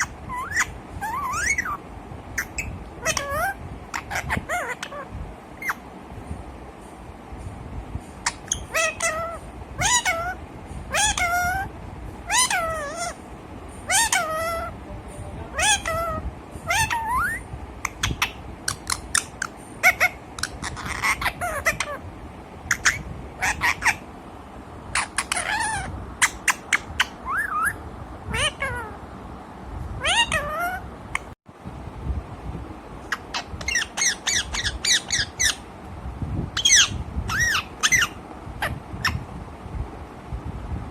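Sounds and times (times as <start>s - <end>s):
parrot calling: 0.0s - 1.8s, 2.4s - 5.8s, 8.2s - 13.2s, 13.8s - 14.8s, 15.5s - 22.0s, 22.6s - 24.0s, 24.9s - 29.0s, 30.0s - 31.4s, 33.1s - 35.7s, 36.6s - 39.2s.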